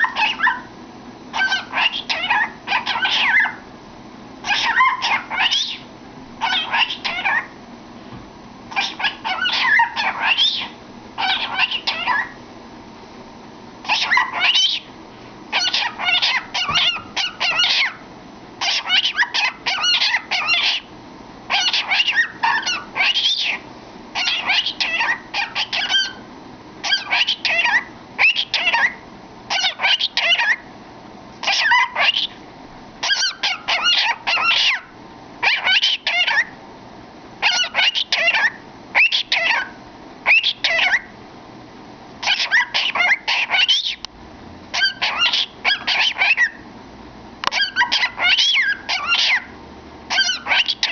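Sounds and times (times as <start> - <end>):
cockatiel whistling and chirping: 0.0 - 0.7, 1.3 - 3.6, 4.4 - 7.5, 8.7 - 12.4, 13.8 - 14.9, 15.5 - 18.0, 18.6 - 20.9, 21.5 - 23.6, 24.2 - 26.2, 26.8 - 30.6, 31.4 - 32.4, 33.0 - 36.5, 37.4 - 41.1, 42.2 - 44.0, 44.7 - 46.6, 47.5 - 49.5, 50.1 - 50.9.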